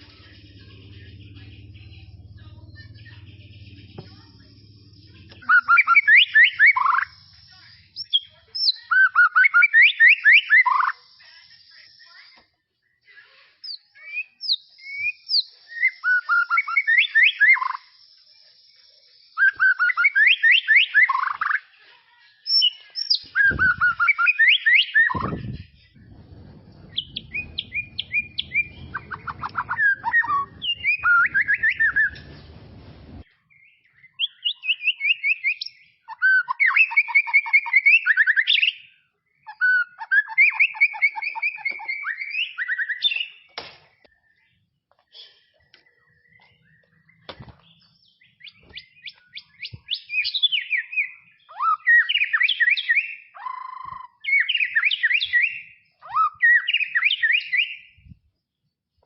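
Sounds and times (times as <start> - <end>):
low rumbling noise: 0.0 - 5.4, 25.2 - 33.3
songbird whistling and trilling: 5.1 - 12.4, 13.6 - 21.7, 22.4 - 58.2.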